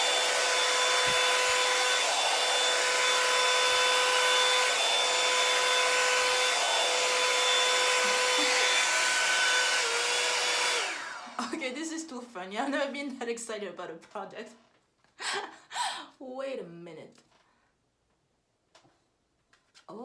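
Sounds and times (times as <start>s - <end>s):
blow dryer running: 0.0s - 11.7s.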